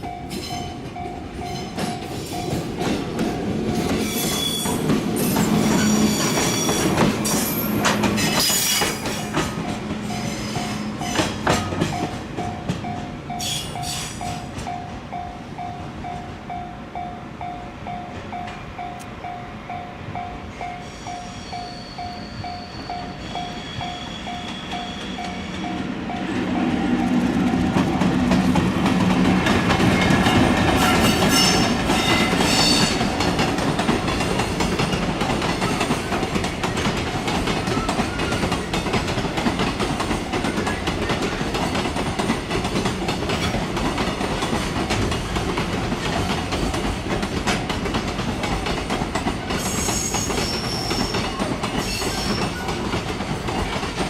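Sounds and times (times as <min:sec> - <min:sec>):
level crossing warning bell: 0:00.0 - 0:04.1, 0:09.4 - 0:11.2, 0:11.8 - 0:27.2
train wheels rushing on rails: 0:00.0 - 0:54.0
high-pitched squeal or horn: 0:20.8 - 0:25.8.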